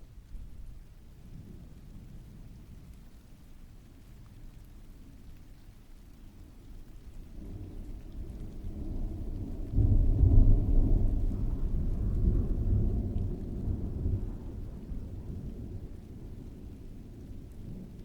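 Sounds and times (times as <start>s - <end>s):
steady rain: 0.0s - 18.0s
thunder rumbling and clapping: 6.9s - 18.0s.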